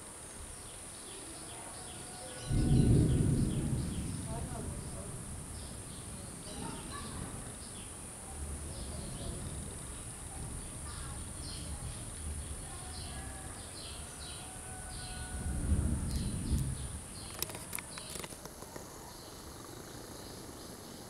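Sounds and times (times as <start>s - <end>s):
small bird chirping: 8.6s - 15.3s, 16.1s - 21.0s.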